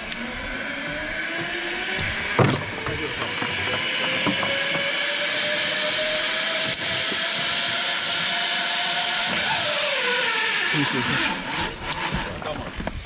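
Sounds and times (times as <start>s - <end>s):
zipline pulleys whining on cable: 0.0s - 13.0s.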